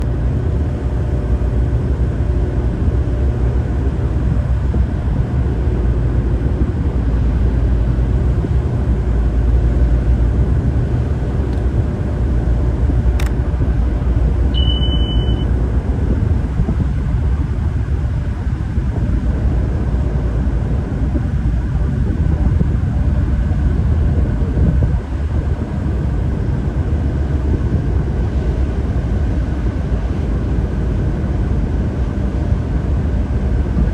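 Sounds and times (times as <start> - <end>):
tugboat engine rumbling: 0.0 - 33.9
brief high beep: 14.5 - 15.5.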